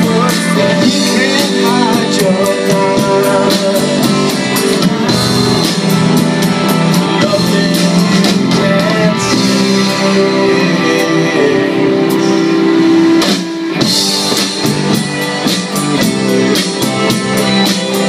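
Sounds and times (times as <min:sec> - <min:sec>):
person singing: 0:00.0 - 0:13.8
drum kit beat: 0:00.0 - 0:18.0
rock band guitars: 0:00.0 - 0:18.0.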